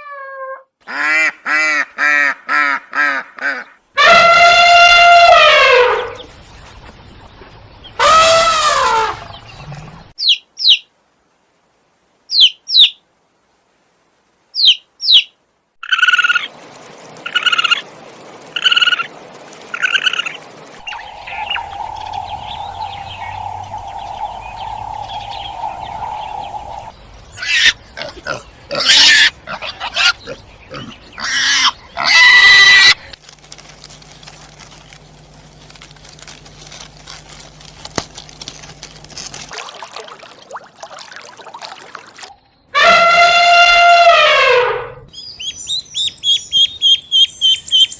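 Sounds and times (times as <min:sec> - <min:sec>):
high chirps: 0:20.8 - 0:26.9
steady tone: 0:20.8 - 0:26.9.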